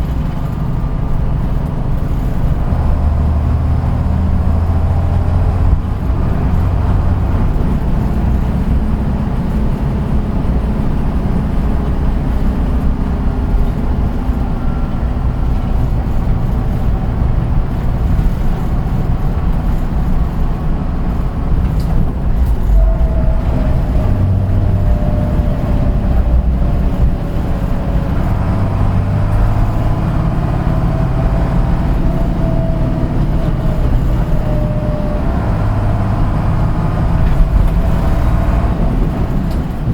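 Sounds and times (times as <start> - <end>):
bus engine rumbling: 0.0 - 39.9
wavering whine: 20.8 - 28.6.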